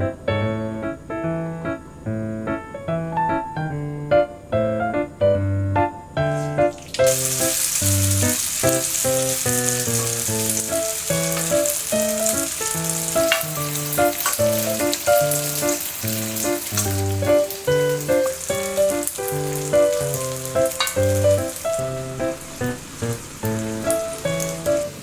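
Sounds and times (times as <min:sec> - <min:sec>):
food sizzling in a frying pan: 0:06.4 - 0:25.0.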